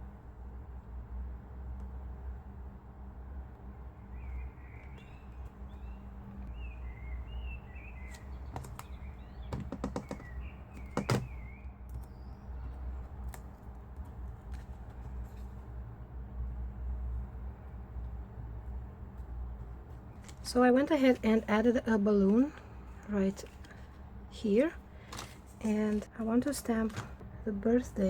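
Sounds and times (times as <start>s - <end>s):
small bird chirping: 4.1s - 12.9s.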